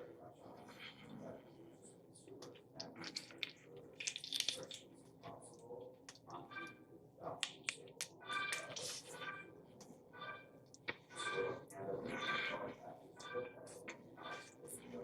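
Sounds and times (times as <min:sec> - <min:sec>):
chewing: 0:02.4 - 0:06.4
wet mouth clicks and smacks: 0:02.8 - 0:04.8.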